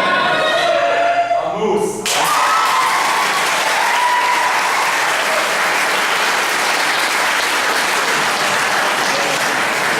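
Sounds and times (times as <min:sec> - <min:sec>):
audience applauding: 0:02.0 - 0:09.9.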